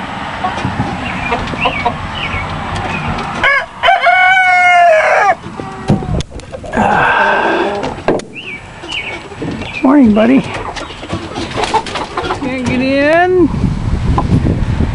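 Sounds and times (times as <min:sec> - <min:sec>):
chickens clucking: 0:00.3 - 0:13.0
rooster crowing: 0:03.3 - 0:06.1.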